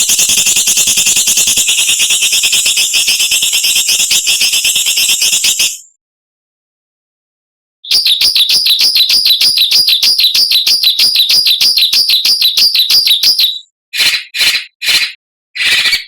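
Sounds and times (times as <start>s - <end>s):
songbird harsh rattling call: 0.0s - 5.8s.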